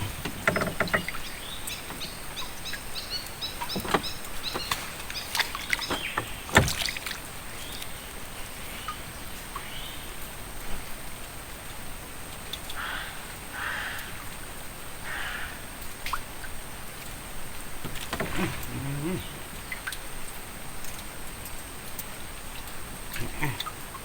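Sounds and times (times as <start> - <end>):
sharp knocks: 0.0 - 2.1, 3.7 - 7.2.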